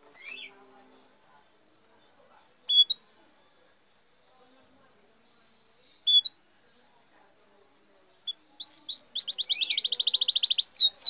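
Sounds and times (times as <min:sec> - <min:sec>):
small songbird singing: 0:00.0 - 0:03.6, 0:05.2 - 0:06.4, 0:08.1 - 0:11.0.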